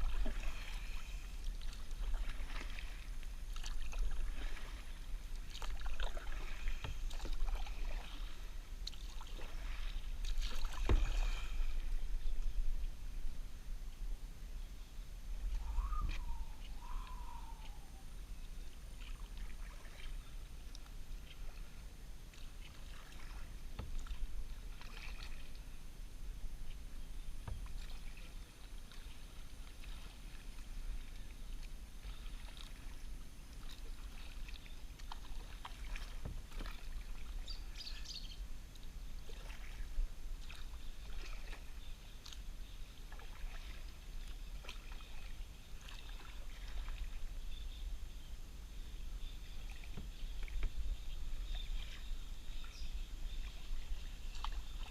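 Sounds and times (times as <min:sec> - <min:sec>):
small splashes and drips: 0:00.0 - 0:11.7, 0:19.0 - 0:25.6, 0:27.4 - 0:47.2, 0:49.6 - 0:50.8, 0:53.4 - 0:54.9
paddle strokes in water: 0:00.0 - 0:14.1, 0:15.2 - 0:54.9.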